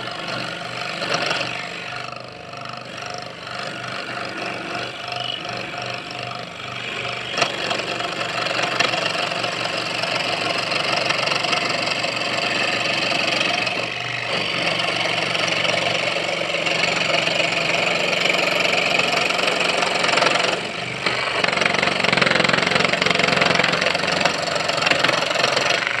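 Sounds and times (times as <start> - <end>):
scroll saw cutting wood: 0.0 - 26.0.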